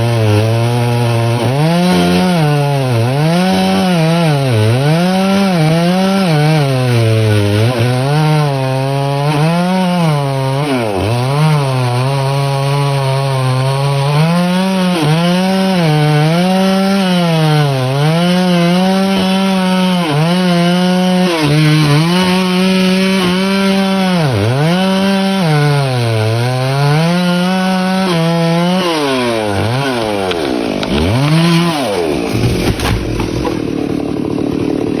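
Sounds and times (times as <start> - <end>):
chainsaw cutting wood: 0.0 - 35.0.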